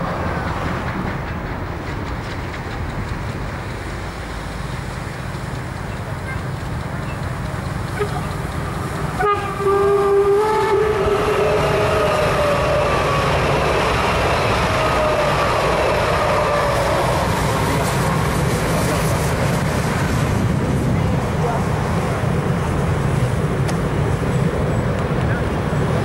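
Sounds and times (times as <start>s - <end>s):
falling tones of passing trains: 0.0s - 26.0s
rumble of wheels on track: 0.0s - 26.0s
train horn blowing: 7.9s - 13.5s, 14.6s - 17.1s.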